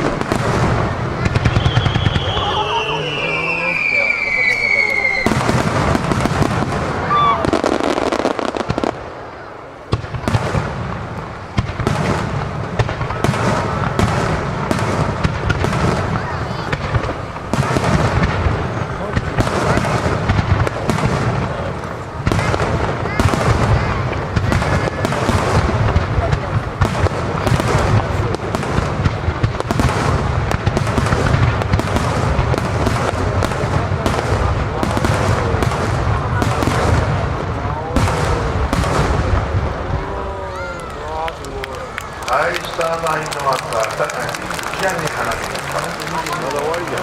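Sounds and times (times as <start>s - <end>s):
fireworks bursting: 0.0s - 47.0s.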